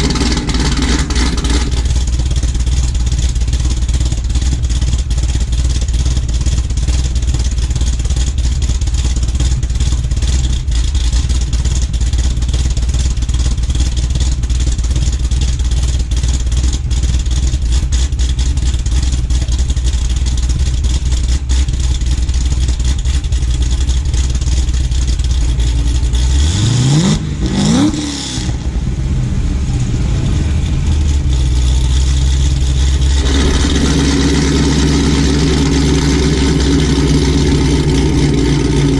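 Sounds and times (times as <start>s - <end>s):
engine revving: 0.0s - 2.4s, 25.6s - 38.9s
car engine idling choppily: 0.0s - 38.9s.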